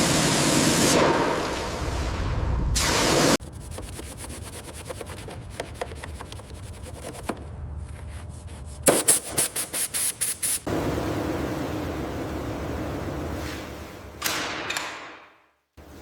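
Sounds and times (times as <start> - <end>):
back-and-forth sanding strokes: 3.5 - 7.3
hand sanding scratchy clicks: 3.6 - 7.3.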